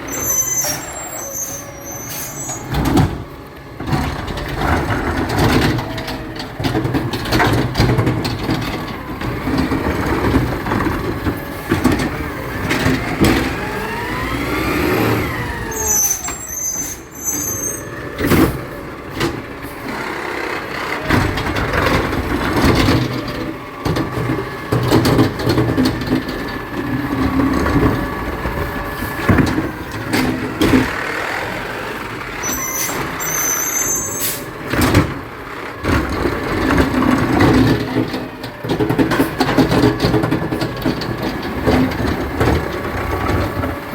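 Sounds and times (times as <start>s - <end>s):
short high squeals: 0.0s - 2.8s, 15.3s - 18.0s, 32.4s - 34.6s
diesel engine running: 0.0s - 43.9s
metal clanks and knocks: 2.5s - 14.1s, 20.8s - 28.6s, 35.9s - 43.9s.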